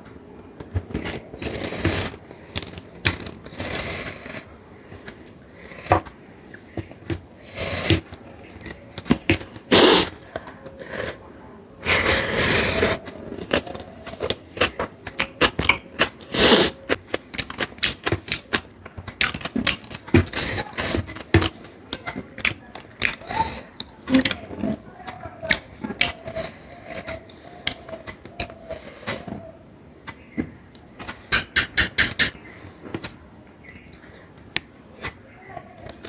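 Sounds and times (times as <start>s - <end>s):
person chewing food: 0.4s - 24.8s.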